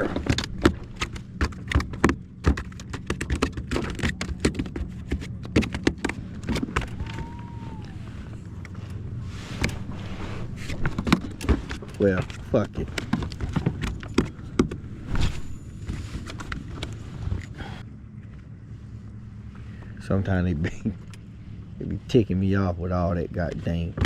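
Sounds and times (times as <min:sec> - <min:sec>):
fish thrashing on a boat: 0:00.0 - 0:17.8
steady low hum: 0:00.0 - 0:24.0.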